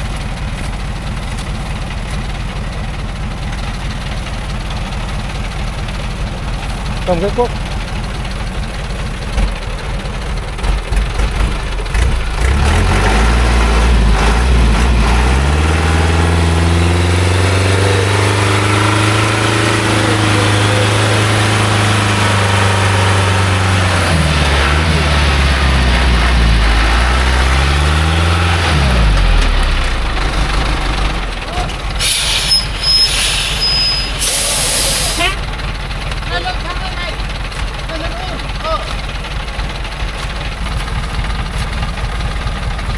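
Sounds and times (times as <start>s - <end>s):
truck engine revving under load: 3.5s - 42.9s.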